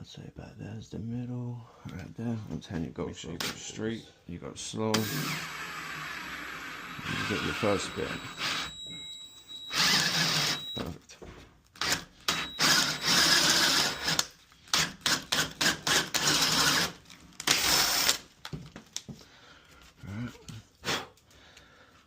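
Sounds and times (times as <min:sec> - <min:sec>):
power drill boring into wood: 0:05.0 - 0:10.9, 0:11.8 - 0:18.2.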